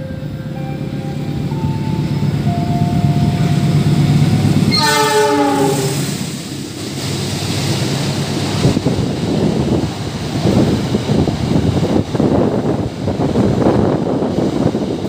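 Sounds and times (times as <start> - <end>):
locomotive rumble: 0.0 - 15.0
train horn blast: 4.7 - 6.2.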